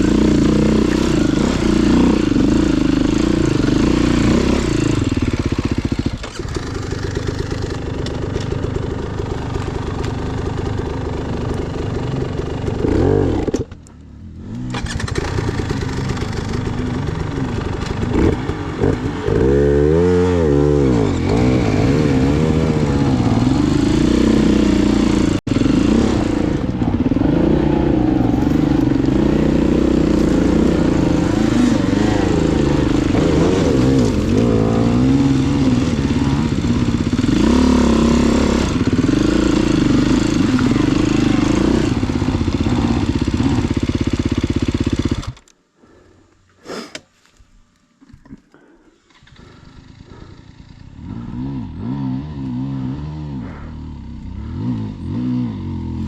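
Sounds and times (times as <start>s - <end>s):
dirt bike engine revving: 0.0s - 13.7s, 14.4s - 45.5s, 48.6s - 56.0s.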